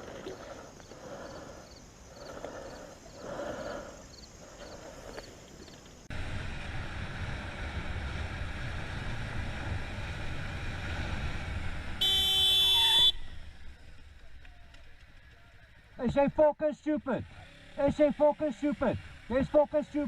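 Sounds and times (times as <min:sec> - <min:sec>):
wind and road noise: 0:00.0 - 0:16.2
loud steady pitched tone: 0:12.0 - 0:13.5.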